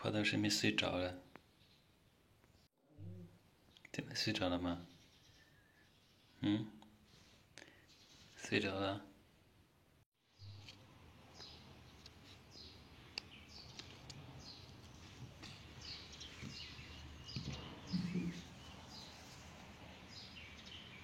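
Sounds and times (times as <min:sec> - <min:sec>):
small bird chirping: 0:10.4 - 0:21.0.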